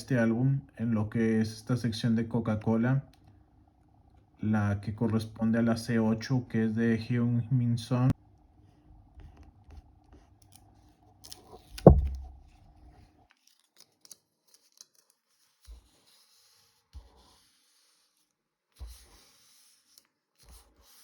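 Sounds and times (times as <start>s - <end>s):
small clicks and scrapes: 9.2s - 21.0s
loud thump: 11.8s - 12.4s
soft taps: 11.8s - 12.4s
paper rustling: 13.3s - 16.3s.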